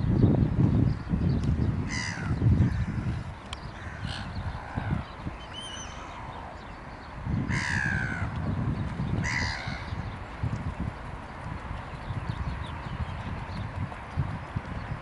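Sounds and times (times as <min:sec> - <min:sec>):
steady low rumble: 0:00.0 - 0:15.0
harsh falling bird calls: 0:01.9 - 0:10.4.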